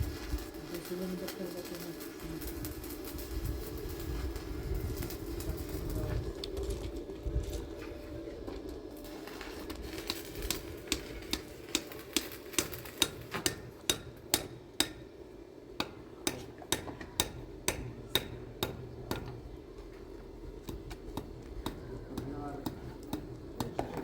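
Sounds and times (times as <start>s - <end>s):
steady hum: 0.0s - 23.7s
hammer striking metal: 10.9s - 15.1s, 15.8s - 19.4s.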